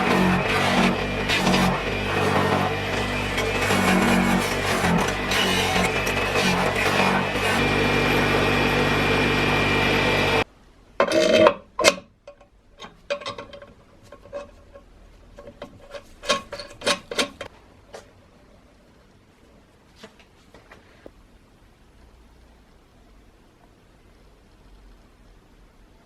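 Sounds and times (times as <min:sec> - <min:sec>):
bench grinder motor humming: 0:00.0 - 0:10.5
tools clicking and knocking: 0:11.0 - 0:14.8, 0:15.4 - 0:17.5.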